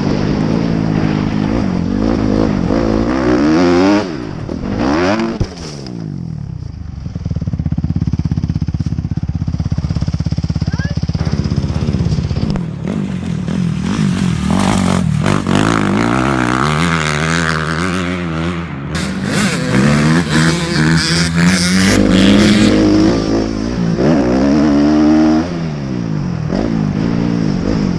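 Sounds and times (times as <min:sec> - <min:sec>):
dirt bike engine revving: 0:11.1 - 0:27.9
clattering noise: 0:11.2 - 0:19.2.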